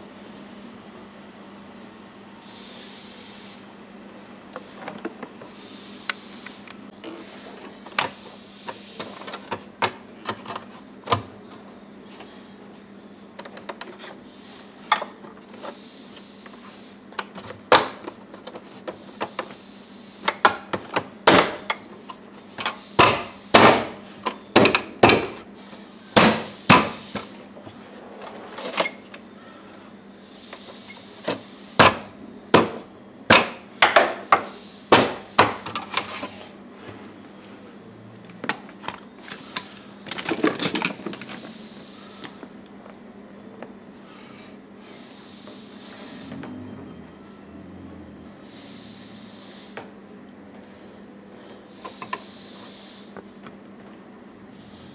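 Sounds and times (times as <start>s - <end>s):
knocks and clacks of tools: 20.3s - 25.4s, 31.2s - 36.4s, 38.4s - 41.5s.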